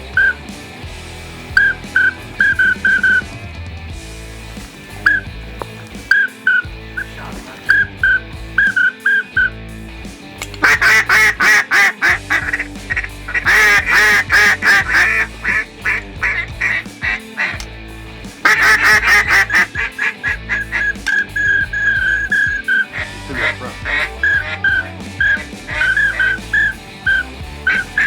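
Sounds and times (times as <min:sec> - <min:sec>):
background music: 0:00.0 - 0:28.0
duck quacking: 0:06.1 - 0:09.5, 0:10.4 - 0:17.7, 0:18.4 - 0:28.0.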